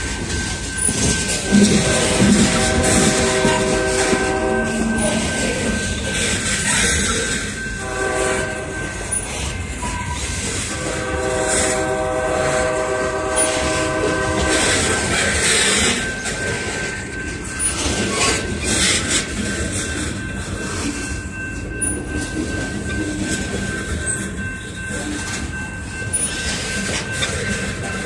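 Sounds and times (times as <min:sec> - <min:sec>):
clicking over rail joints: 0:00.0 - 0:07.8
wheel-on-rail noise: 0:00.0 - 0:28.0
locomotive horn: 0:01.5 - 0:05.2, 0:07.8 - 0:08.9, 0:10.6 - 0:15.4.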